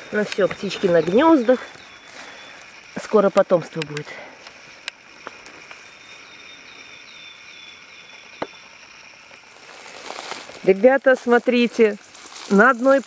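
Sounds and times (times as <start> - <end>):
dry twigs snapping underfoot: 0.0 - 6.0.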